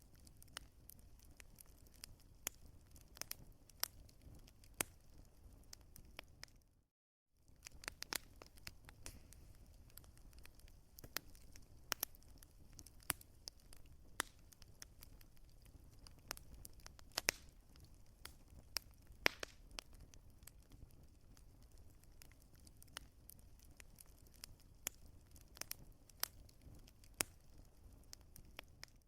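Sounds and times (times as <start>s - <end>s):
wood fire crackling: 0.0s - 6.7s, 7.4s - 29.0s
soft low hiss: 7.4s - 28.9s.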